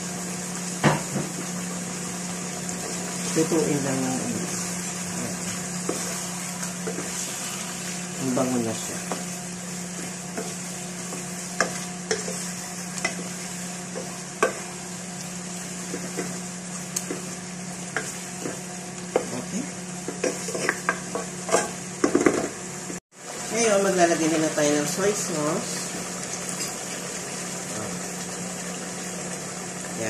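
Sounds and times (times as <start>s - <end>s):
chicken and onions sizzling: 0.0s - 30.0s
wooden spoon scraping pot: 4.4s - 8.1s, 17.0s - 21.8s.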